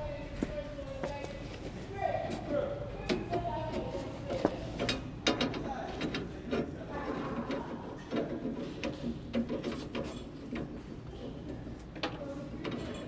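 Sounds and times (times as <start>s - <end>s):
clicking and clattering of pipe fittings: 3.0s - 13.0s.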